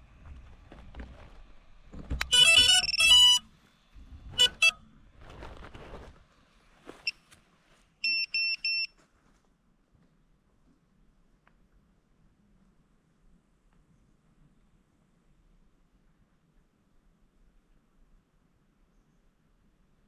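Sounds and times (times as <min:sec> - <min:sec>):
stepped startup tones from motors: 0:02.0 - 0:04.8
short beeps: 0:02.2 - 0:03.5, 0:08.0 - 0:08.9
handling rustle: 0:04.0 - 0:08.0.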